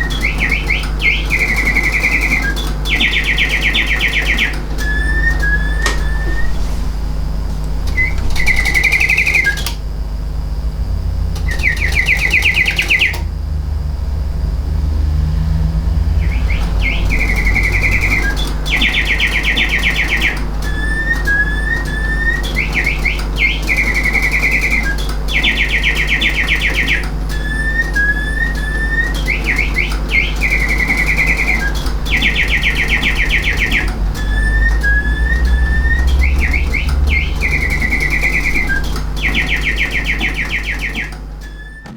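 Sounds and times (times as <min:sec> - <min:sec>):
mechanical birdsong whistling: 0:00.0 - 0:13.5, 0:14.8 - 0:41.9
steady low rumble: 0:09.8 - 0:11.5, 0:13.2 - 0:20.7.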